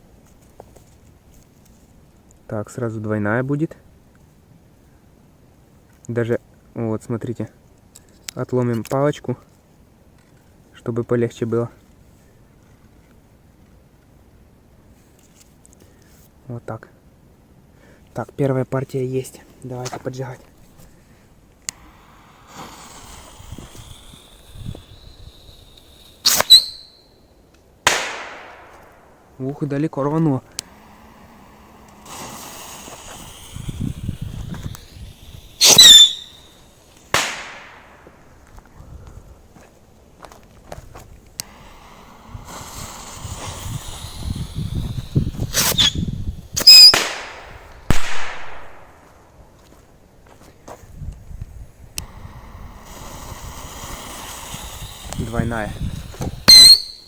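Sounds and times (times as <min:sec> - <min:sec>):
firework rocket whistle: 0:21.7 - 0:27.2, 0:30.6 - 0:37.9, 0:41.4 - 0:48.8, 0:52.0 - 0:57.0
firework bangs: 0:22.0 - 0:27.0, 0:27.8 - 0:29.3, 0:32.0 - 0:38.2, 0:42.4 - 0:49.1, 0:52.8 - 0:57.0.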